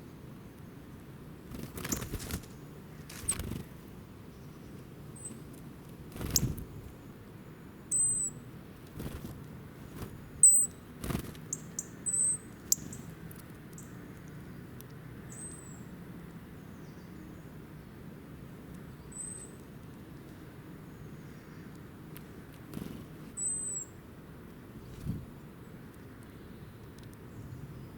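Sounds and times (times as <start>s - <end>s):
small bird chirping: 4.3s - 5.5s, 6.2s - 7.1s, 7.9s - 8.4s, 10.4s - 10.8s, 11.4s - 14.6s, 15.2s - 15.9s, 18.9s - 19.6s, 22.7s - 24.0s.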